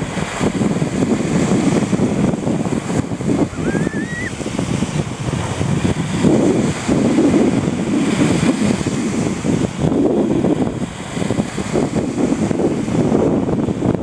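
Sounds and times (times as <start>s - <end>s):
surf breaking on shore: 0.0s - 14.0s
wind buffeting microphone: 0.0s - 14.0s
thin rising whistle: 3.5s - 4.4s.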